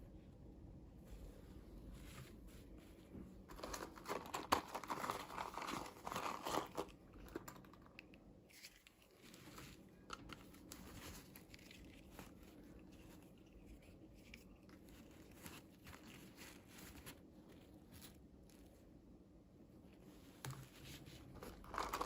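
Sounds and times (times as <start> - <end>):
packaging crinkling and tearing: 3.5 - 17.2, 21.3 - 22.0.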